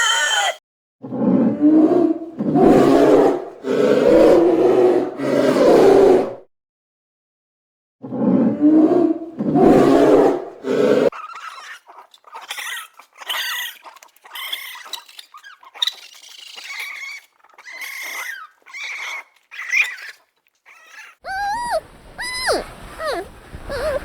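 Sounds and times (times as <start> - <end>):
small animal squeaky cries: 14.4 - 24.0.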